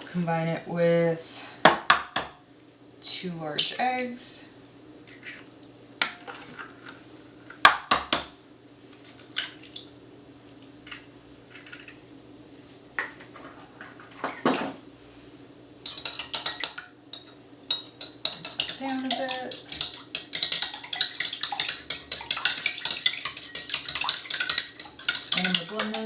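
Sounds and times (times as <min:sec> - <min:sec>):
dishes and utensils clinking: 0:13.0 - 0:14.8, 0:15.8 - 0:26.0
fork beating eggs in bowl: 0:15.8 - 0:26.0
eggs cracked on a bowl: 0:17.7 - 0:26.0.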